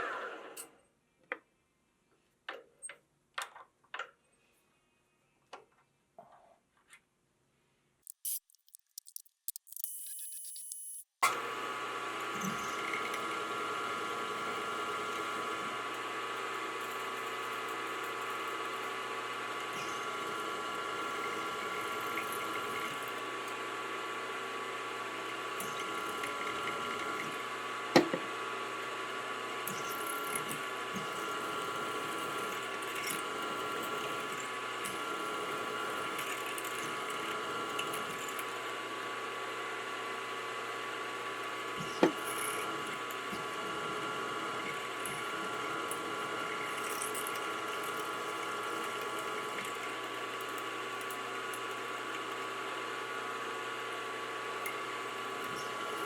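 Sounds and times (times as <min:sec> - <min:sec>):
machine spindle whining while cutting: 0:11.3 - 0:38.6.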